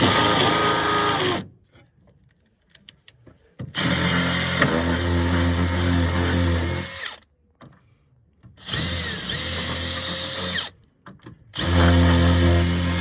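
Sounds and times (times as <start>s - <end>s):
power drill drilling into wood: 0.0s - 1.4s, 3.8s - 7.2s, 8.6s - 10.7s, 11.6s - 13.0s.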